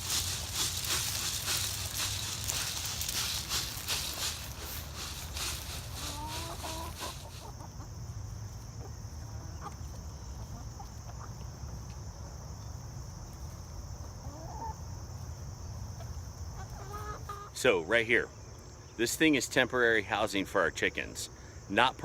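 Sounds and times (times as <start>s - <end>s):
rustling: 0.0s - 7.5s
chickens clucking: 0.0s - 17.6s.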